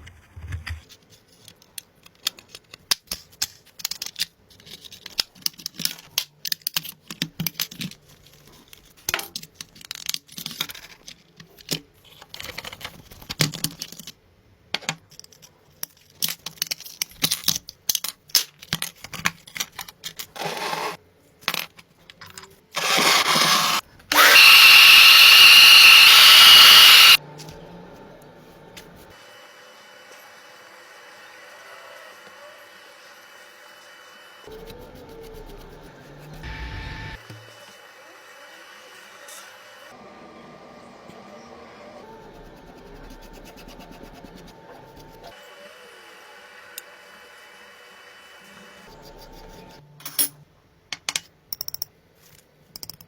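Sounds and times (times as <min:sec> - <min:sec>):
power tool whining: 0:22.8 - 0:27.2.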